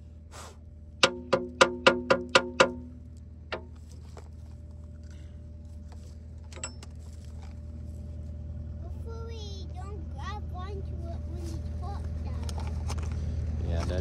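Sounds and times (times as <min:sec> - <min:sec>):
steady low hum: 0:00.0 - 0:14.0
hammer striking steel: 0:01.0 - 0:03.0.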